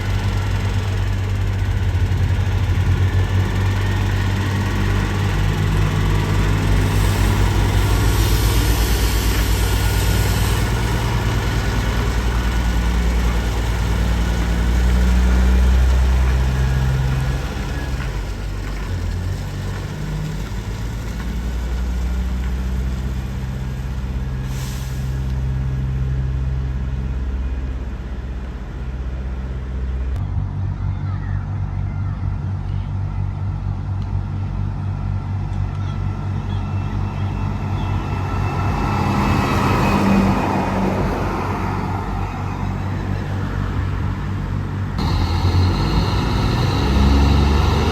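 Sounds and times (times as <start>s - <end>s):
diesel truck engine drone: 0.0s - 47.9s
air hiss: 6.7s - 13.9s.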